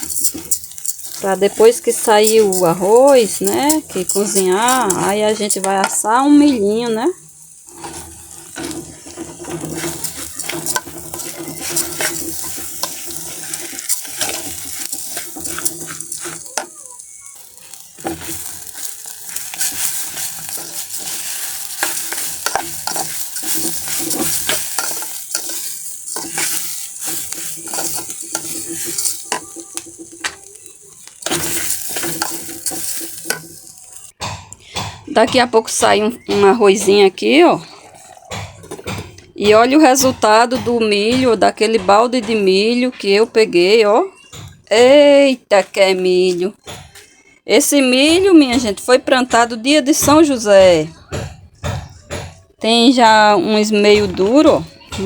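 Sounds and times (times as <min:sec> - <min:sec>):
rice sizzling in hot oil: 0:00.0 - 0:34.2
spoon scraping a pan: 0:00.0 - 0:44.9, 0:51.4 - 0:55.0.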